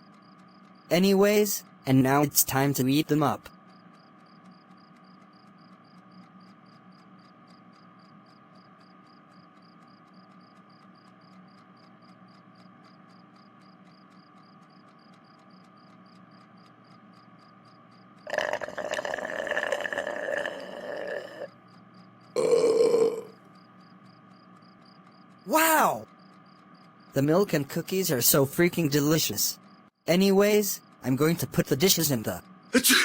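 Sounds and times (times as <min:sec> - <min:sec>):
rapid ticking: 0:00.0 - 0:32.7
cartoon burp sound effect: 0:18.3 - 0:21.5, 0:22.4 - 0:23.4.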